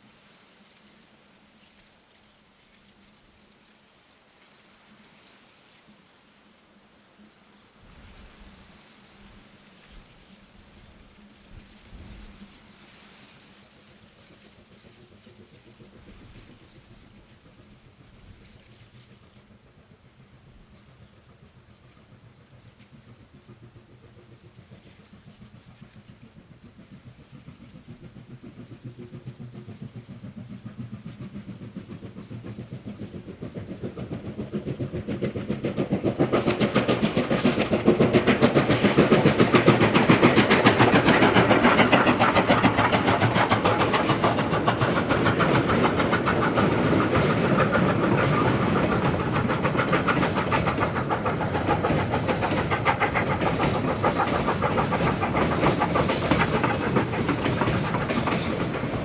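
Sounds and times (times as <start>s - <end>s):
rhythmic clatter on rails: 0.0s - 59.0s
steam locomotive running by: 0.0s - 59.0s.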